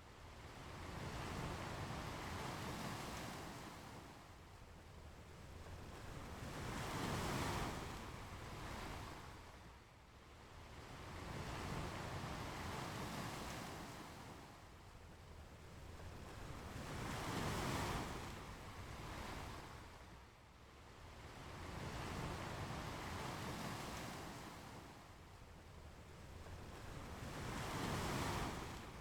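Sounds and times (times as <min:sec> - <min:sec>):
ocean waves breaking on beach: 0:26.4 - 0:29.0.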